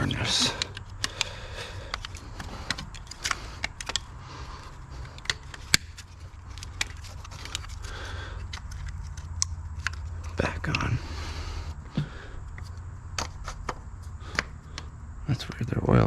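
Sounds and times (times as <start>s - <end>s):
steady low hum: 0.0s - 16.0s
plastic wiring harness clicking: 0.4s - 10.9s.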